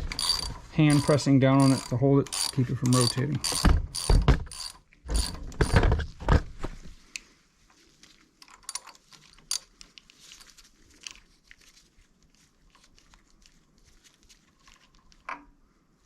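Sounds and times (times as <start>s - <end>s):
small metal parts clicking: 0.0s - 5.8s, 8.4s - 11.3s
wrench being handled: 0.0s - 5.8s, 8.4s - 11.3s.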